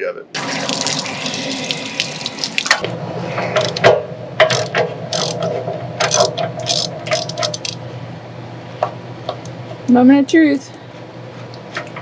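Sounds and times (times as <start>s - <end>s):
socket wrench ratcheting: 4.5s - 5.5s, 6.1s - 7.8s.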